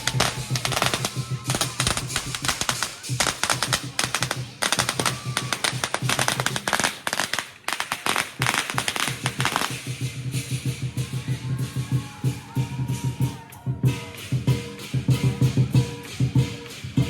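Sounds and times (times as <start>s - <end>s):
firecrackers popping: 0.0s - 11.0s
cymbals: 0.0s - 17.0s
drum beat: 0.0s - 17.0s.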